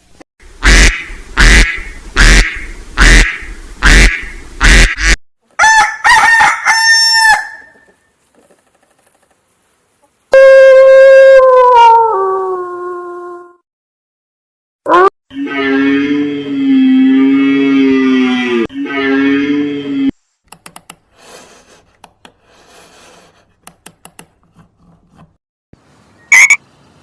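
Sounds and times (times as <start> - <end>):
duck quacking: 0.6 - 5.2.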